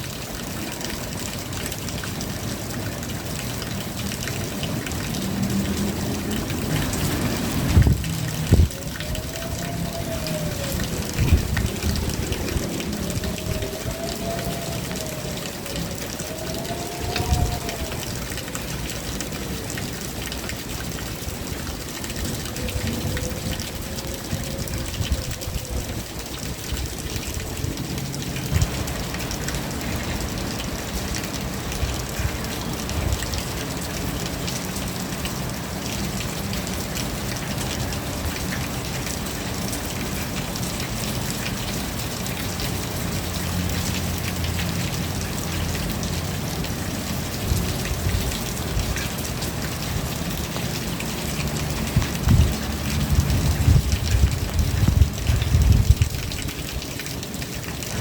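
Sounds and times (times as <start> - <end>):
rain drops ticking on surfaces: 0.0 - 58.0.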